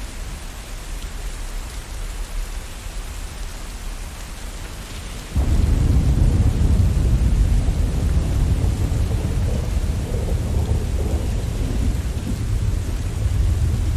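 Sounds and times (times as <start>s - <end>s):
steady rain hiss: 0.0s - 13.9s
rolling thunder rumble: 5.3s - 13.9s.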